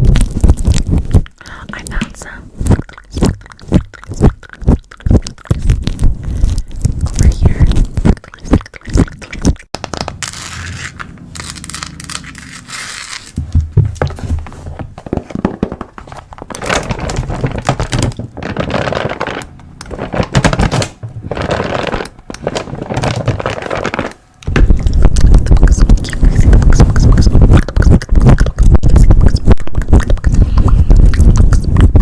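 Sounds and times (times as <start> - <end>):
sharp clicks and taps: 0.4 - 10.2
scraping crinkling and tearing: 5.0 - 28.0.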